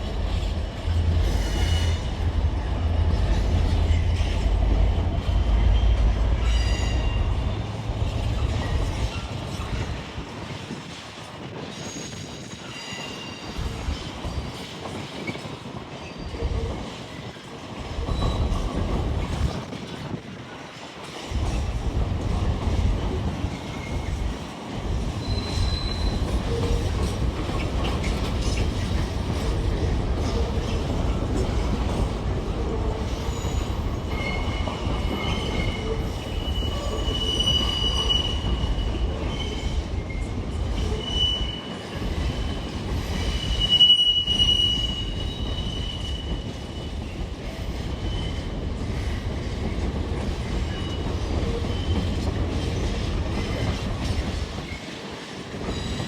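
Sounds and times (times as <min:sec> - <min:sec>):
train rumbling on rails: 0:00.0 - 0:56.0
wheel squeal: 0:25.2 - 0:26.9, 0:33.2 - 0:41.8, 0:43.0 - 0:48.4.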